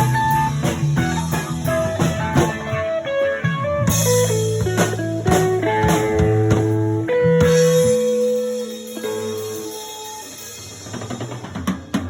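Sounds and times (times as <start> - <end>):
bass notes: 0.0 - 8.6
blues guitar: 0.0 - 12.0.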